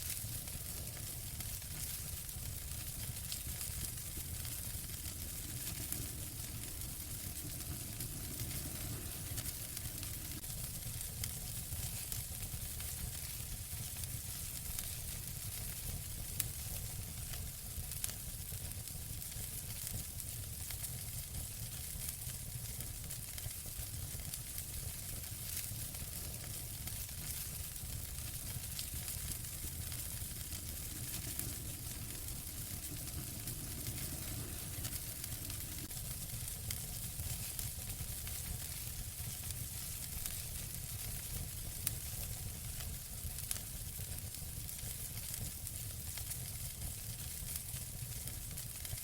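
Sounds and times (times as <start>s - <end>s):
soft hiss and low rumble: 0.0s - 49.0s
wood fire crackling: 0.0s - 49.0s
loud pops from fire: 19.4s - 48.9s.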